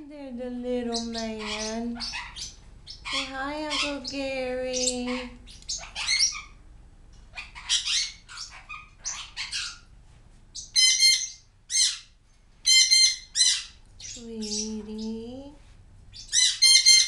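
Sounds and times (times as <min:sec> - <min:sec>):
parrots squawking: 0:00.9 - 0:06.6, 0:07.3 - 0:09.9, 0:10.6 - 0:14.7, 0:16.1 - 0:17.0.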